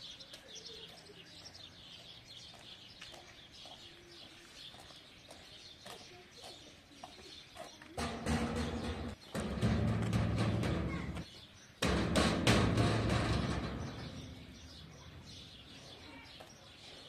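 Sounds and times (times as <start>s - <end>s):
birds chirping: 0.0s - 17.0s
music with heavy drum beat: 8.2s - 11.2s.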